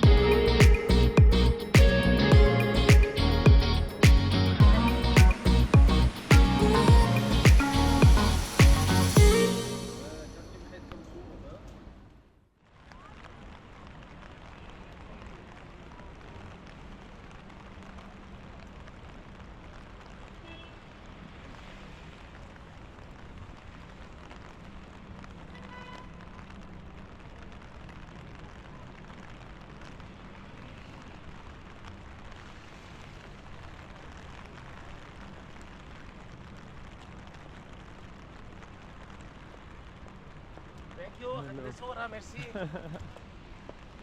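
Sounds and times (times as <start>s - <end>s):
brief pitched tone: 0.0s - 11.0s
rain falling on street: 0.0s - 11.8s, 12.6s - 44.0s.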